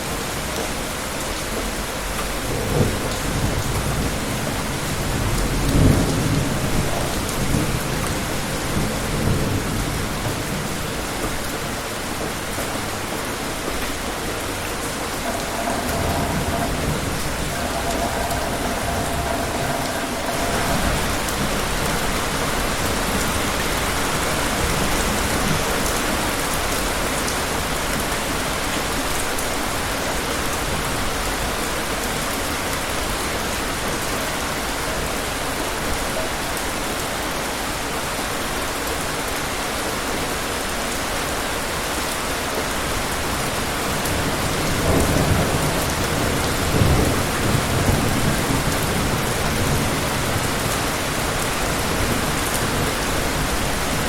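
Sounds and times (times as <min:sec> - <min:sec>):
heavy rain falling: 0:00.0 - 0:54.0
thunder rumbling: 0:01.6 - 0:27.3.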